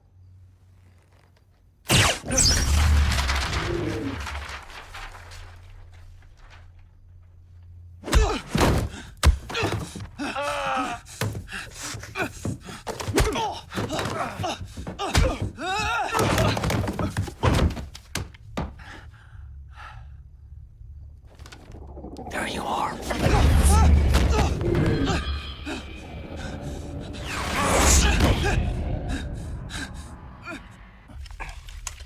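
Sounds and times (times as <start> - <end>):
rapid thuds and impacts: 8.0 - 10.2, 11.1 - 19.0.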